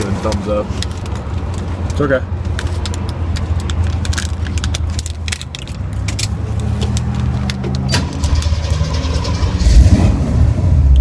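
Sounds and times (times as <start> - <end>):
sharp clicks and rattles: 0.2 - 9.8.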